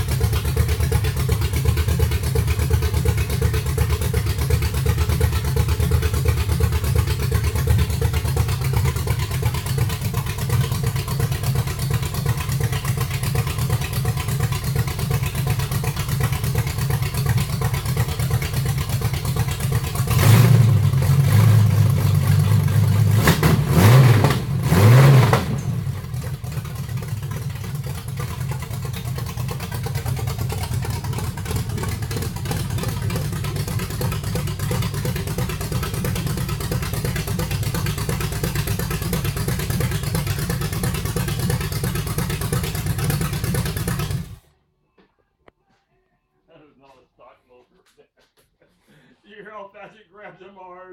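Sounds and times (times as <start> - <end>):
engine idling and revving: 0.0 - 44.5.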